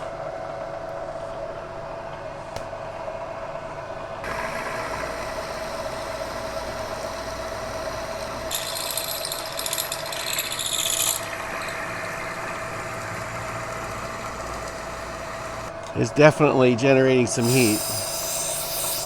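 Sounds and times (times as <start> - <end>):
milling machine cutting metal: 4.2 - 15.7, 17.3 - 19.0
loud high hiss: 17.4 - 19.0.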